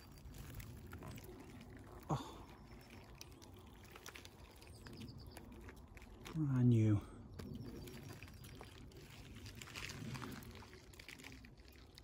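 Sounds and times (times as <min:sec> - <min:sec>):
leaves and twigs rustling: 0:00.0 - 0:12.0.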